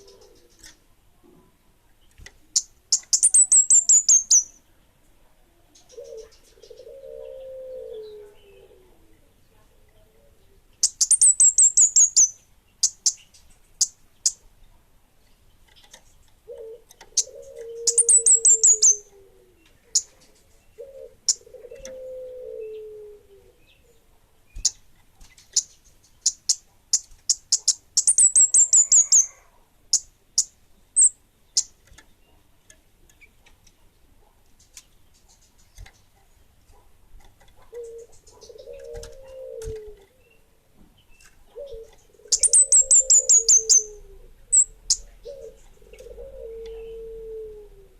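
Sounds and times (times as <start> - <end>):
lower falling bird calls: 0.0 - 0.8, 15.7 - 32.3, 37.7 - 47.9
songbird singing chirps and trills: 0.0 - 47.9
sharp bird chips: 2.6 - 4.5.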